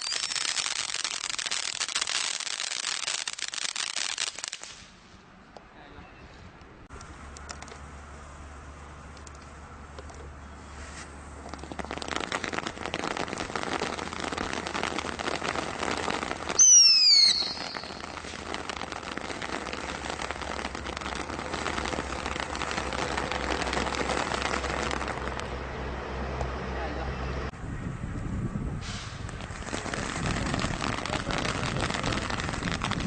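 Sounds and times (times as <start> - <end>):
fireworks crackling: 0.0 - 5.2, 10.6 - 25.6, 28.8 - 33.0
firework whistle falling in pitch: 16.6 - 18.1.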